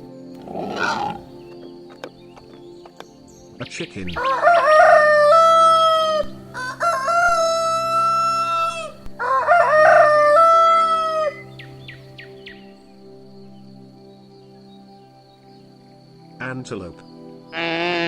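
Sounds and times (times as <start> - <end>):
rooster crowing: 4.2 - 11.4.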